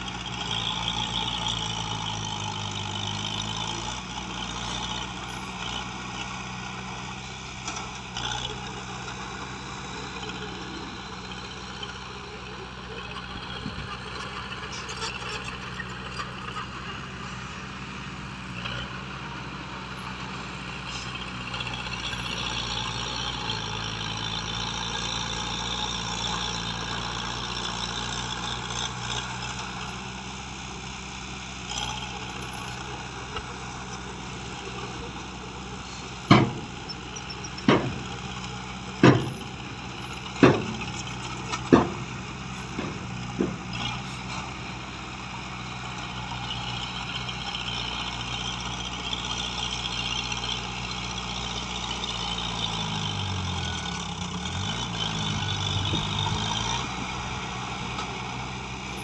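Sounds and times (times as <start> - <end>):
diesel excavator running: 0.0 - 59.0.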